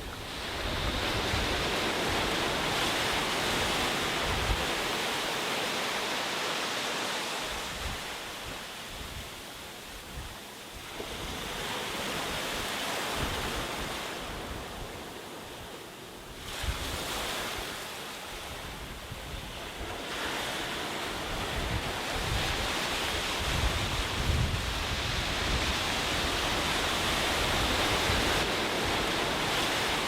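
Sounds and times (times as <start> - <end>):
wind buffeting microphone: 0.0 - 5.1, 18.4 - 30.0
sea waves breaking on beach: 0.0 - 30.0.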